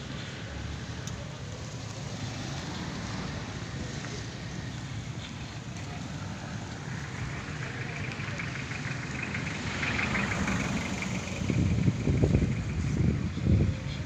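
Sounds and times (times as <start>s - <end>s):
road traffic: 0.0s - 14.0s
wind buffeting microphone: 10.6s - 14.0s.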